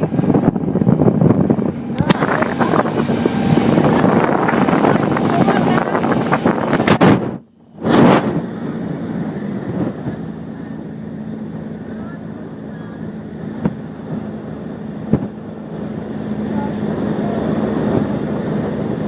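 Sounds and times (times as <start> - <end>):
motorboat engine droning: 0.0 - 19.0
loud rushing noise: 1.4 - 11.6.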